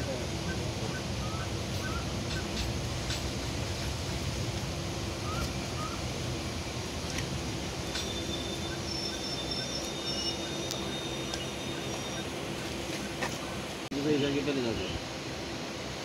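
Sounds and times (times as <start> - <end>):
thin high whine: 0.0 - 15.2
train low rumble and hum: 0.0 - 16.0.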